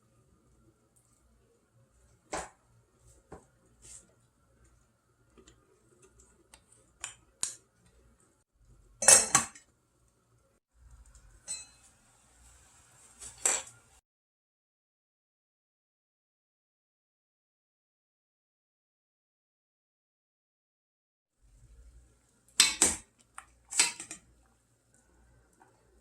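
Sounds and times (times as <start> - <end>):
kitchenware clinking and clattering: 9.0 - 9.7, 11.4 - 11.9, 13.2 - 13.8, 22.6 - 23.0, 23.6 - 24.3.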